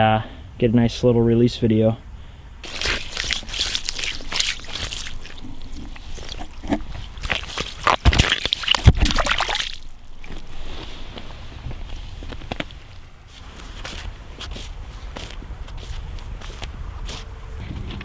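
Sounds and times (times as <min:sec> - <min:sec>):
water sloshing and splashing: 0:02.6 - 0:12.0.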